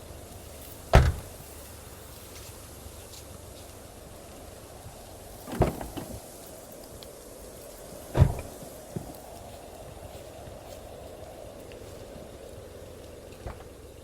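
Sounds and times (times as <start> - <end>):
steady background noise: 0.0 - 14.0
heavy thuds: 0.8 - 1.6, 8.1 - 9.2, 13.4 - 13.9
light knocks: 13.4 - 13.8.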